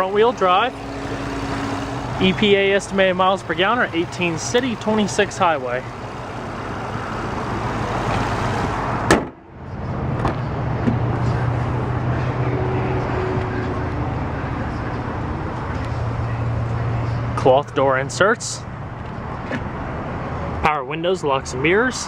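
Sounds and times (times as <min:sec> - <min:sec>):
vehicle and traffic noise: 0:00.0 - 0:22.0
car panel slam: 0:09.1 - 0:09.4.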